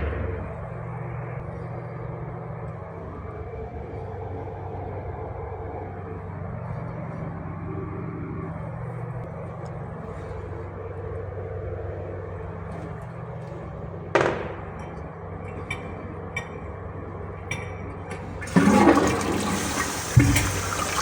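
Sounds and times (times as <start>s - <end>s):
steady low hum: 0.0s - 21.0s
toilet flushing: 18.1s - 21.0s.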